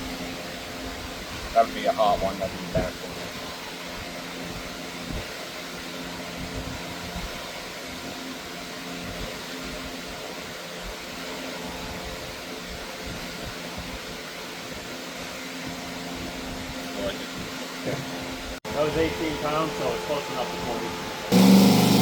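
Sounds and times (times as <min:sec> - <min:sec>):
machinery hum and whoosh: 0:18.2 - 0:22.0.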